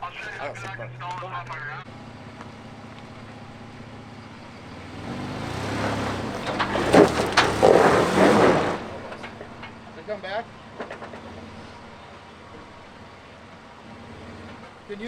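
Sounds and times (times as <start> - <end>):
off-road vehicle engine revving: 0.2 - 15.0.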